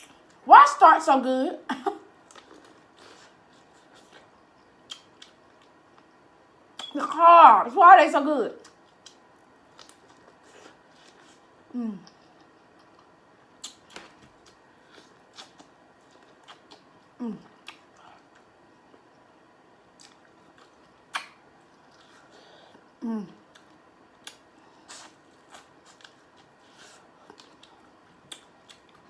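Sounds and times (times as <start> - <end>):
chewing and lip smacks: 2.2 - 6.1, 8.6 - 11.4, 12.0 - 19.1, 20.0 - 22.3, 23.4 - 29.0.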